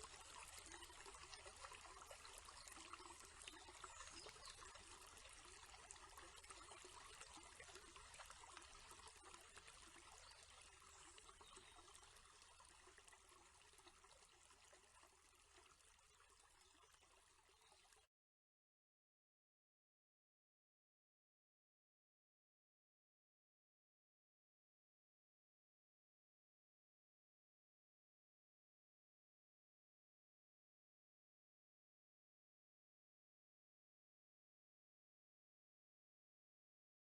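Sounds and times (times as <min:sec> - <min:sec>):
water trickling: 0:00.0 - 0:18.1.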